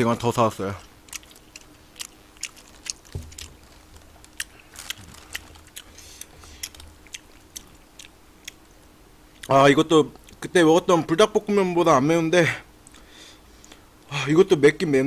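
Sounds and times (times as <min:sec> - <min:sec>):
close-up chewing: 0:00.8 - 0:09.5.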